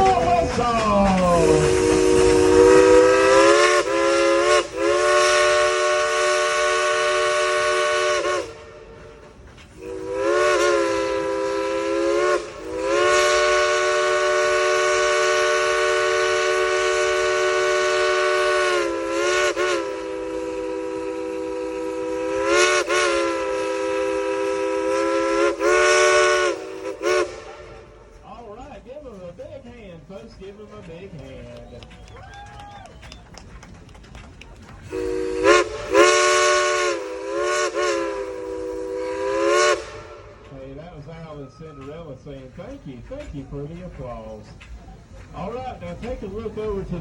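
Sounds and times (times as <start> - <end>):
hiss of steam: 0.0 - 28.2, 34.9 - 47.0
steam whistle blasts: 0.9 - 9.2, 9.8 - 28.0, 34.8 - 42.1.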